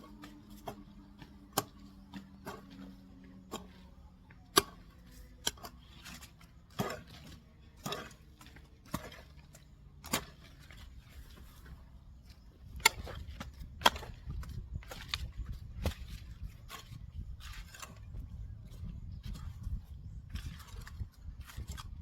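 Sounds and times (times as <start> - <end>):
hand tool chopping into soil: 0.3 - 2.9, 3.5 - 9.3, 10.0 - 10.8, 12.6 - 16.8.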